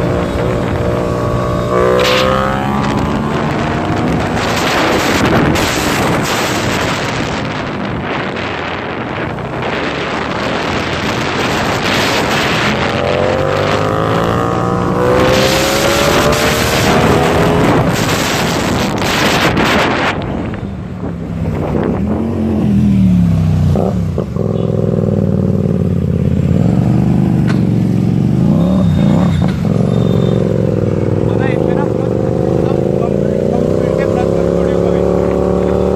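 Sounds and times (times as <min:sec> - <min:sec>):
wind rush: 0:00.0 - 0:24.4
motorcycle engine accelerating: 0:00.0 - 0:35.9.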